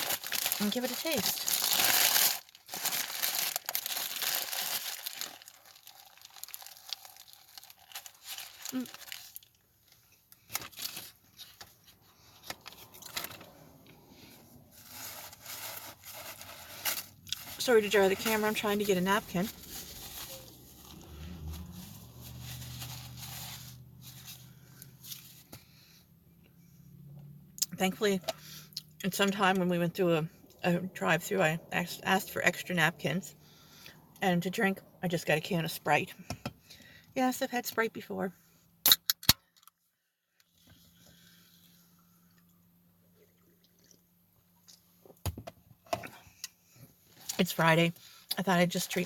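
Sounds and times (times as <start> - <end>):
rustling and handling noises: 0.0 - 25.7
low steady hum: 0.0 - 38.7.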